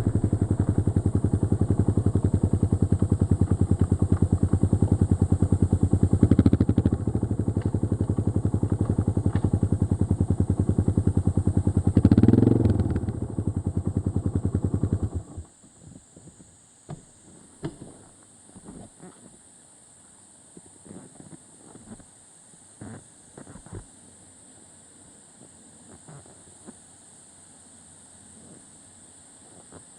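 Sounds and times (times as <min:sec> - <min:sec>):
motorcycle engine pulsing exhaust: 0:00.0 - 0:15.5.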